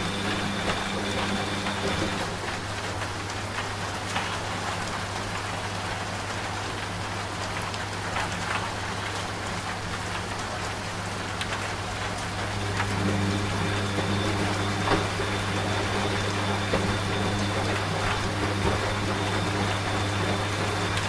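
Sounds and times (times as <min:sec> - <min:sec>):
rain falling: 0:00.0 - 0:21.0
washing machine humming: 0:00.0 - 0:21.0
raindrop ticks: 0:00.5 - 0:13.0.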